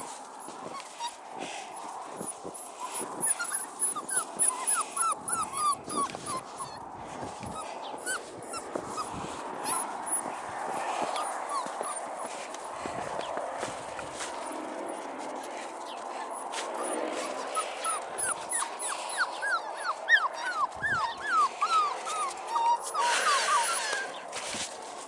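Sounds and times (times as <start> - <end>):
puppies whining: 0.0 - 24.3
rustling: 19.9 - 25.0.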